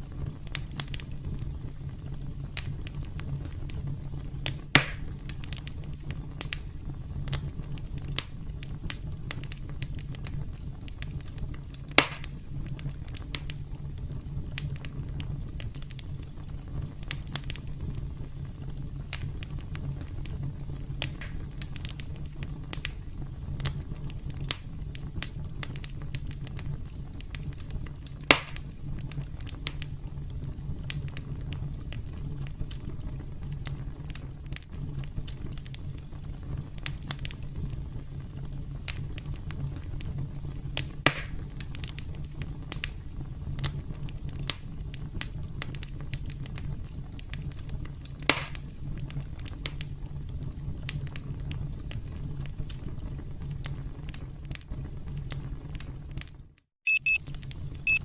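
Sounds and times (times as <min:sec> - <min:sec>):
campfire crackling: 0:00.0 - 0:56.4, 0:57.2 - 0:58.0
fire low rumble: 0:00.0 - 0:58.0
sharp loud pops: 0:12.0 - 0:12.3.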